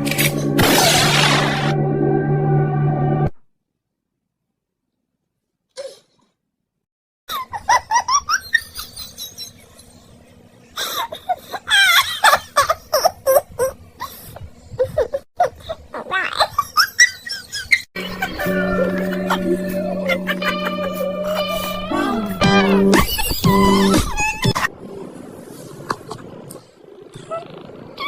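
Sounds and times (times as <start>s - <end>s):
high-pitched laughter: 10.8s - 24.8s
music with held notes: 18.0s - 24.4s.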